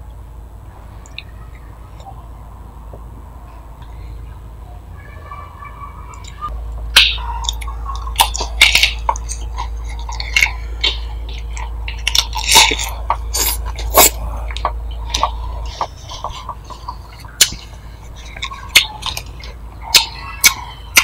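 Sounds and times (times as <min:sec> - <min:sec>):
crisp chewing crunches: 0:07.4 - 0:21.0.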